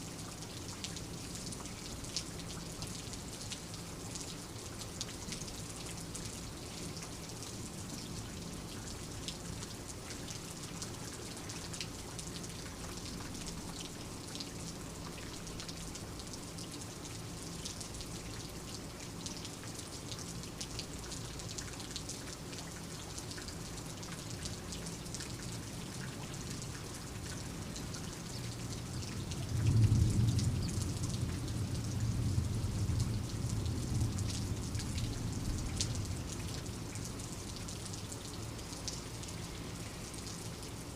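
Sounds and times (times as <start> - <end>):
steady rain falling: 0.0 - 40.9
low rumble of thunder: 28.9 - 36.6.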